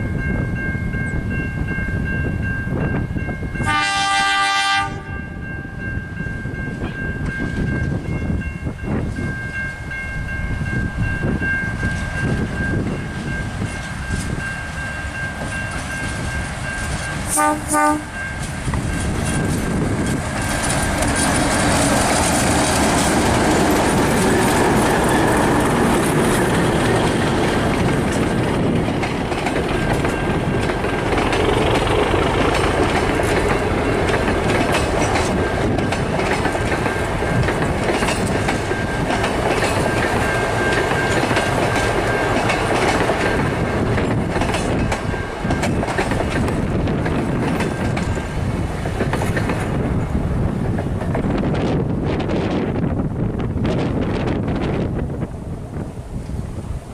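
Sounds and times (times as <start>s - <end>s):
train wheels rumbling on rail: 0.0s - 56.9s
clickety-clack of rail joints: 11.4s - 55.0s.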